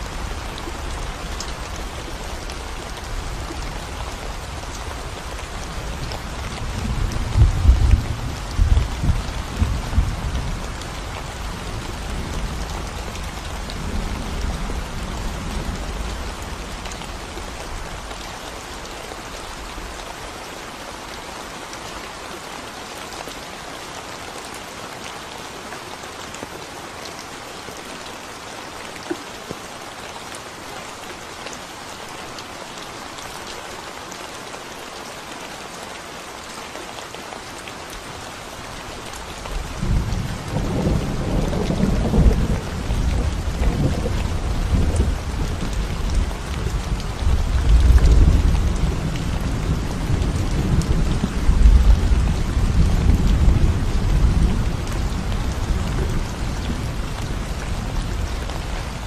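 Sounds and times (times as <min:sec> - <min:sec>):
rain on concrete road: 0:00.0 - 0:59.0
low rumble of thunder: 0:05.6 - 0:18.0, 0:39.6 - 0:59.0.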